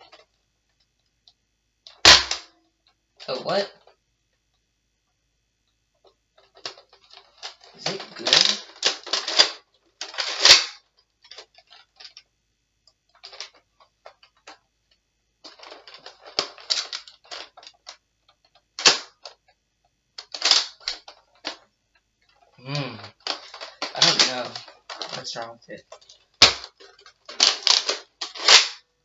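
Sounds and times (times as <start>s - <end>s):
sharp plastic snaps: 1.9s - 2.5s, 6.5s - 12.2s, 15.5s - 19.6s, 20.2s - 21.6s, 23.1s - 28.8s
toy blaster mechanism clicking: 2.0s - 2.5s, 6.6s - 12.2s, 18.8s - 19.5s, 20.2s - 21.6s, 23.2s - 28.8s.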